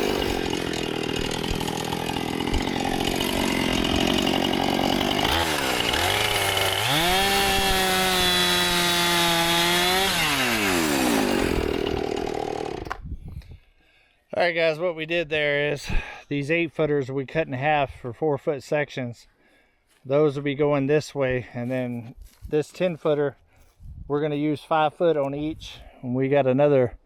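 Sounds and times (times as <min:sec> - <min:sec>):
chainsaw cutting wood: 0:00.0 - 0:13.1.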